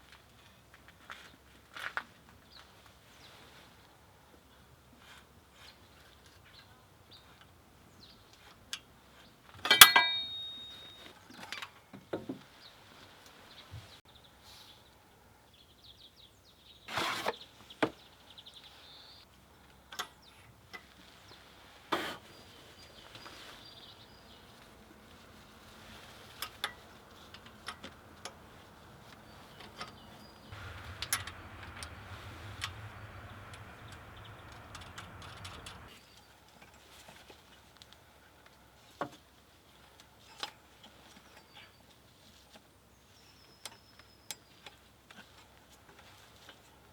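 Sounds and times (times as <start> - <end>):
metal tools clinking: 9.7 - 11.0, 29.5 - 35.9
ringing metallic clank: 9.7 - 11.0, 30.6 - 35.9
low hum: 30.0 - 35.9.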